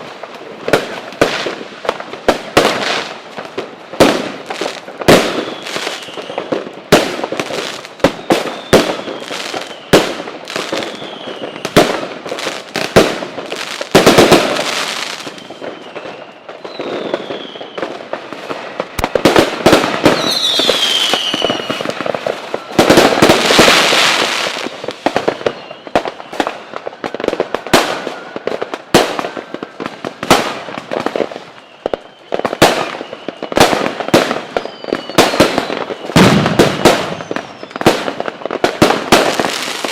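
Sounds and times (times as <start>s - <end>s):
fireworks bangs: 0.0s - 39.9s
fireworks crackling: 0.0s - 39.9s
falling whistles: 5.3s - 6.5s, 8.0s - 10.0s, 10.7s - 11.8s, 15.0s - 18.0s, 20.0s - 26.8s, 31.4s - 33.7s, 34.4s - 37.9s.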